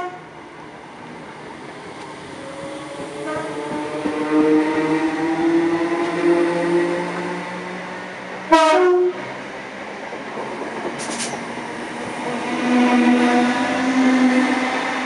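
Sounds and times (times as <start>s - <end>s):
train horn blast: 0.0s - 0.3s, 3.2s - 3.8s, 8.5s - 9.2s.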